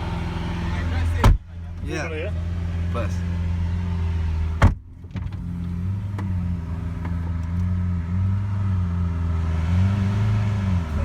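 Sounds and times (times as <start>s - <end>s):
car engine idling: 0.0s - 8.1s
car door shutting: 1.2s - 1.9s, 4.5s - 7.6s.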